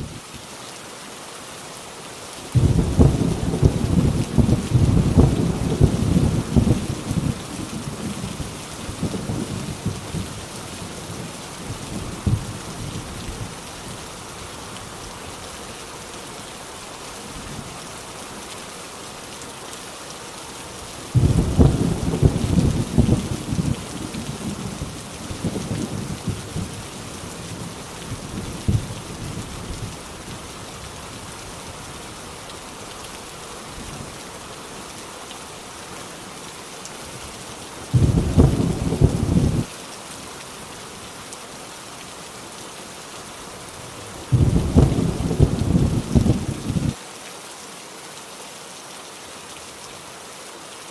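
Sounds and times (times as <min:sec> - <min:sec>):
heavy rain on a tin roof: 0:00.0 - 0:50.9
thunder rumbling: 0:02.6 - 0:10.4, 0:21.1 - 0:30.0, 0:37.9 - 0:39.7, 0:44.3 - 0:47.0.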